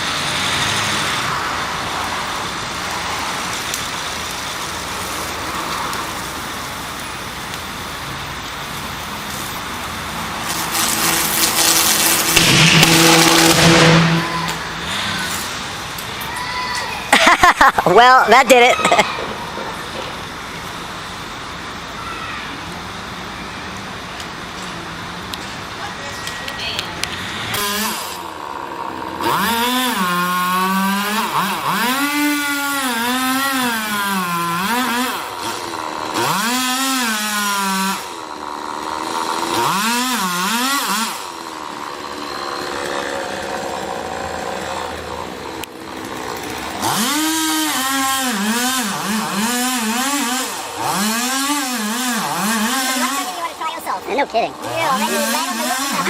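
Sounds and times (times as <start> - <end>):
chainsaw engine revving: 0.0 - 21.9, 27.0 - 56.0.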